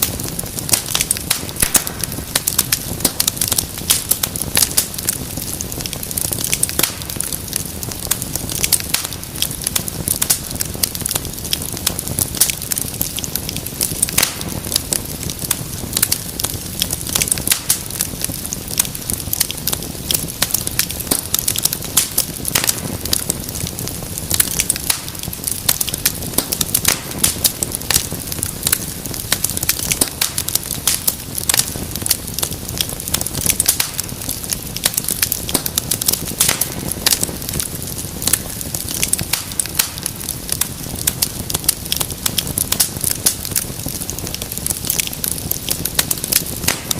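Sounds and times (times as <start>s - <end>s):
low rumble of flames: 0.0s - 46.9s
wood fire crackling and popping: 0.0s - 46.9s.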